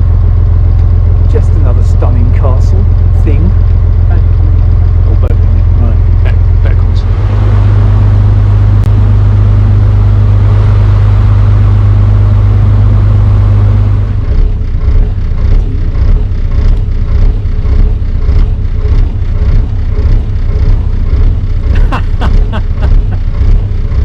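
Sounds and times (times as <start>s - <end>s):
boat engine humming: 0.0s - 24.0s
gusts of noise: 6.7s - 14.3s.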